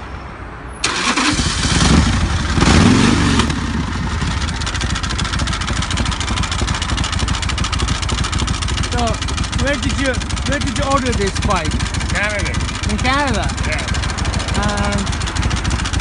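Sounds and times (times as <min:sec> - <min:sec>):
motorcycle engine starting and revving: 0:00.8 - 0:16.0.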